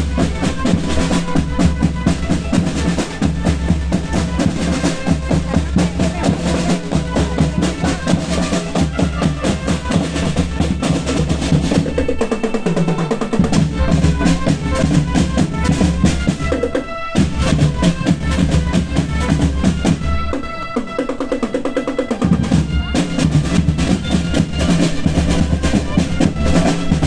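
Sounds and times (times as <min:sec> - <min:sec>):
marching band playing: 0:00.0 - 0:27.0
snare drum rolls: 0:00.0 - 0:27.0
bass drums: 0:13.4 - 0:16.6.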